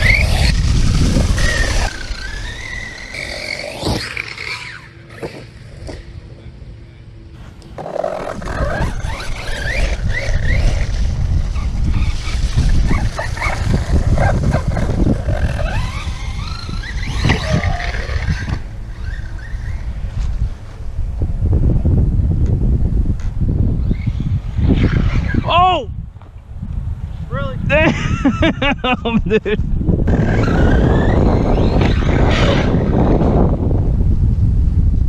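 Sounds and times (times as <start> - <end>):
electric motor whining: 0.0 - 6.2, 7.6 - 20.2, 30.0 - 33.4.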